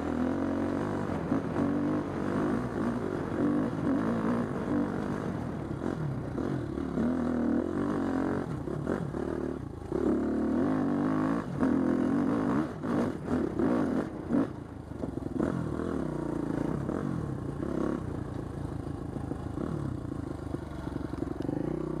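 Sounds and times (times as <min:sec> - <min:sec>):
dirt bike engine revving: 0:00.0 - 0:14.6.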